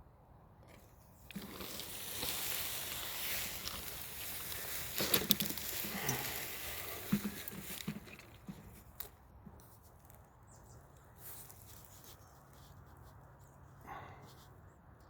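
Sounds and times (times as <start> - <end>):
rustling and crackling: 0.7 - 10.3.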